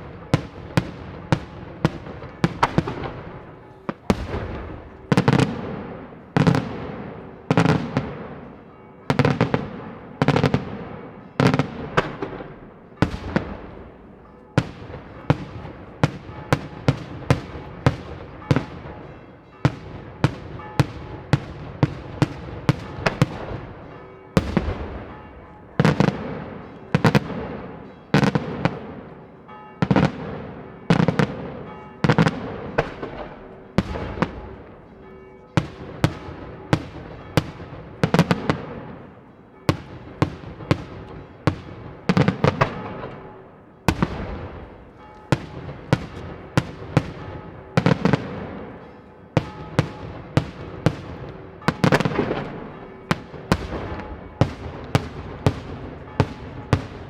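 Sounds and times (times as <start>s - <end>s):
firework shell bangs with echo: 24.4s - 26.1s.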